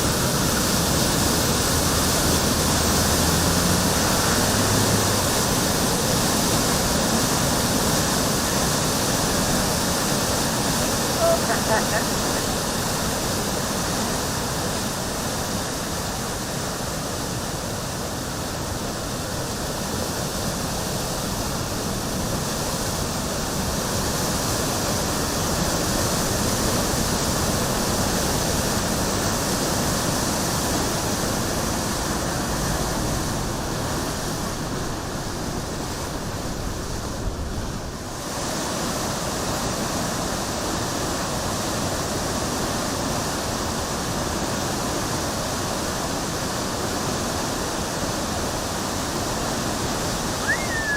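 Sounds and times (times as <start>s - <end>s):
river floodwater rushing: 0.0s - 50.9s.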